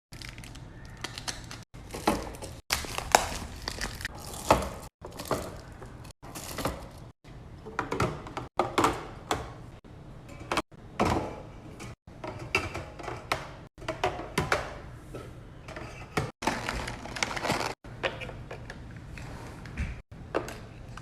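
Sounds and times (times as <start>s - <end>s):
plastic packaging crinkling: 0.1s - 7.1s, 16.4s - 17.8s.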